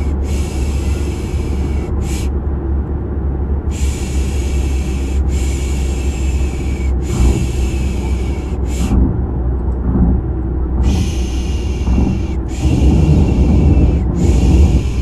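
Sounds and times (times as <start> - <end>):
car ride rumble: 0.0 - 15.0
person shushing: 10.8 - 15.0.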